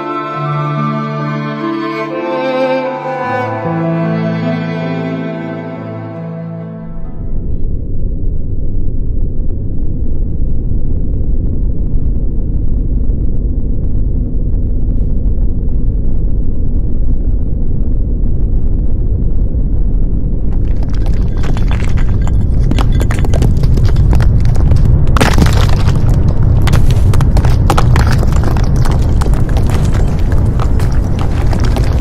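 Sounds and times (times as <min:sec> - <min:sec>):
deep steady rumble: 0:06.8 - 0:32.0.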